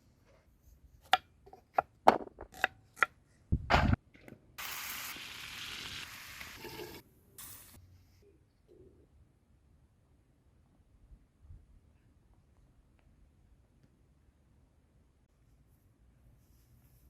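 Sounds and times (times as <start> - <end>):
food sizzling in hot oil: 4.6 - 7.8.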